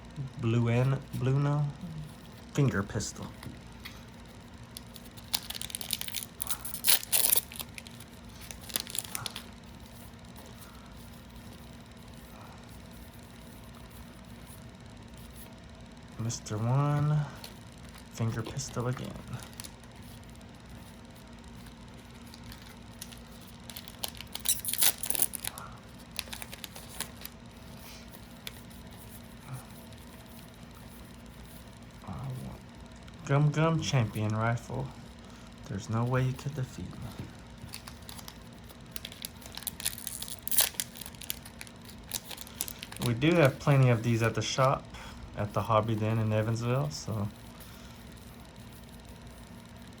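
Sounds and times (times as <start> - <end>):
foil wrapper tearing and crinkling: 4.7 - 10.0, 17.4 - 20.2, 21.0 - 28.7, 37.6 - 44.6.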